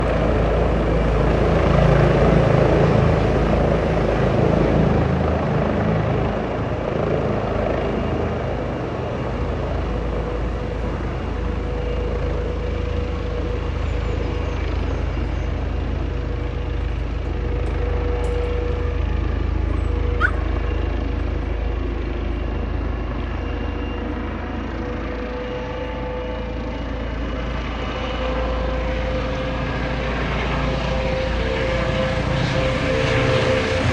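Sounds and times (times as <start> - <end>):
helicopter rumble: 0.0 - 33.9.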